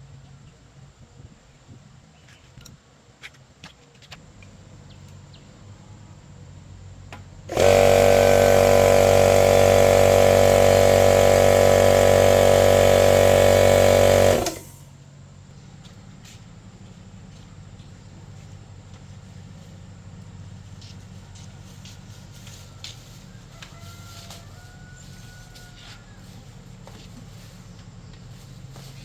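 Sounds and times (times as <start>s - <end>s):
power tool motor running: 7.5s - 14.9s.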